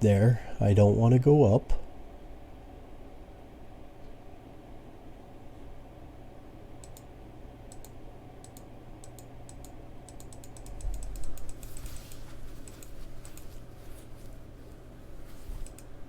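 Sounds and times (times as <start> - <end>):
keyboard and mouse clicking: 6.8 - 7.1, 7.7 - 13.6, 15.6 - 15.9.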